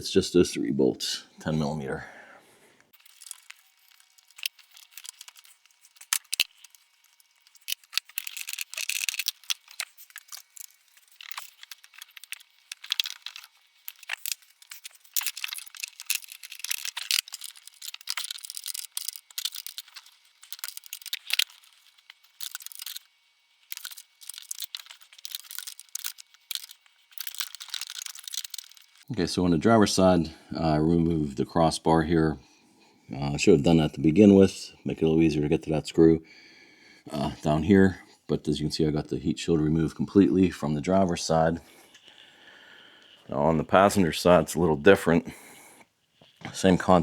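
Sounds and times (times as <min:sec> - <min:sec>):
hand tools clicking and scraping: 0:02.8 - 0:29.1
sheet metal crinkling: 0:02.9 - 0:29.1.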